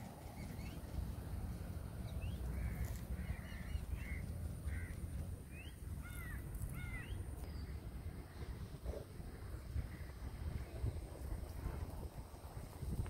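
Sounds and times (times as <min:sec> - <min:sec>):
crow-like bird calls: 0:02.6 - 0:05.0, 0:06.0 - 0:07.2
wind rumble on microphone: 0:05.8 - 0:13.0.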